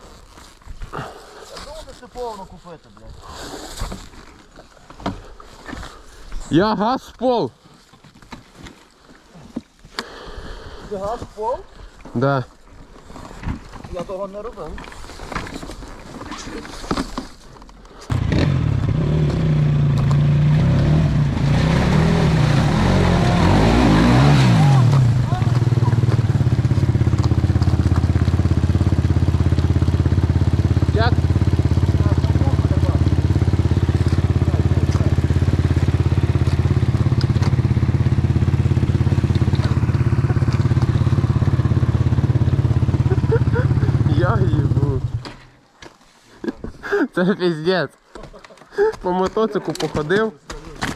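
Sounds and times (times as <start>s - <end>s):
motorcycle engine running: 18.1s - 45.2s.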